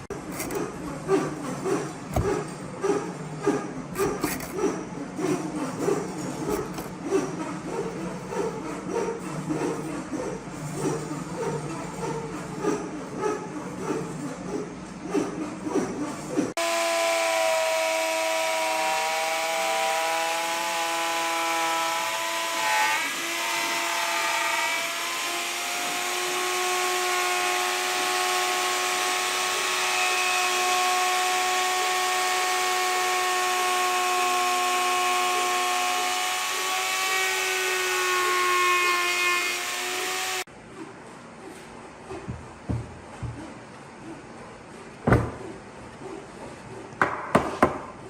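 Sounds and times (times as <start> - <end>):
power tool whining: 0.0 - 2.6, 3.9 - 4.8, 6.1 - 7.4, 16.6 - 40.5.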